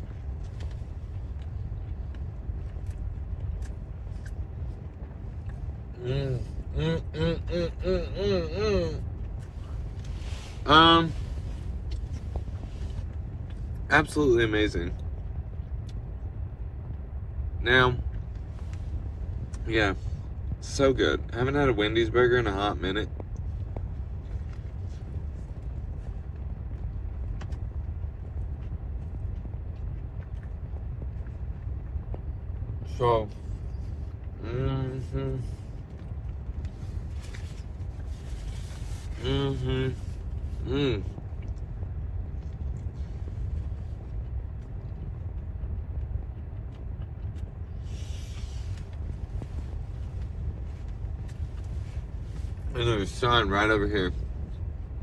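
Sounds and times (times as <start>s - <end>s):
car idling rumble: 0.0s - 55.0s
person chewing food: 0.3s - 5.7s, 28.5s - 32.0s.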